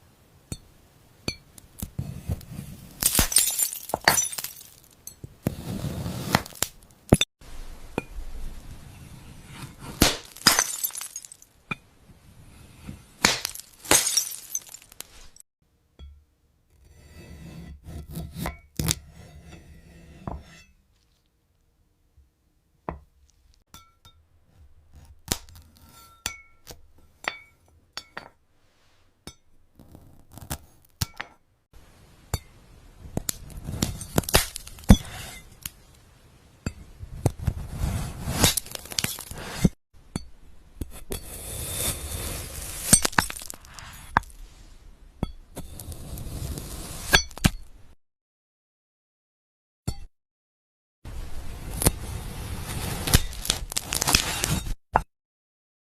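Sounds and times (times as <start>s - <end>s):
glass clinking and cracking: 3.0s - 5.3s, 10.0s - 11.8s, 13.2s - 15.4s, 33.2s - 35.8s, 38.4s - 39.4s, 42.6s - 44.3s, 53.1s - 54.2s
dense crackling and scraping: 12.6s - 15.4s, 33.0s - 36.0s, 37.0s - 39.8s, 41.3s - 44.9s, 51.6s - 54.8s.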